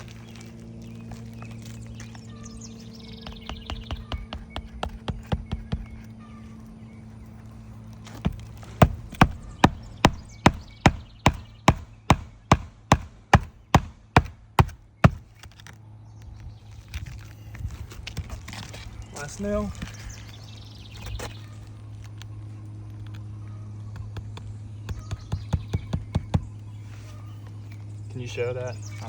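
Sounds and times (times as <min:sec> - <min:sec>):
hammer blows on roofing nails: 0:03.2 - 0:06.0, 0:08.2 - 0:15.4, 0:24.0 - 0:26.6
hammer tapping nails: 0:08.2 - 0:15.2.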